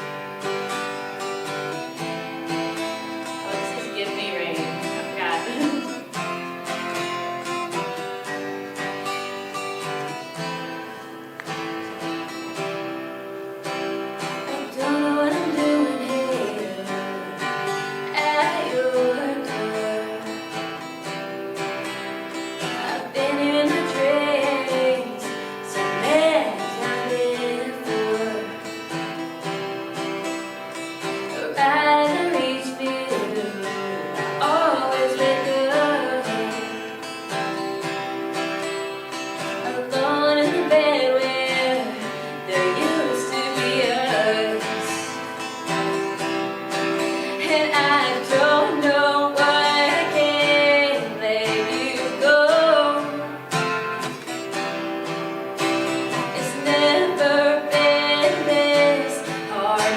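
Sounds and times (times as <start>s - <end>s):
strummed acoustic guitar: 0.0s - 59.9s
woman singing: 3.0s - 7.2s, 14.1s - 21.2s, 22.4s - 29.6s, 31.0s - 37.6s, 39.4s - 45.8s, 46.8s - 53.6s, 55.8s - 59.9s.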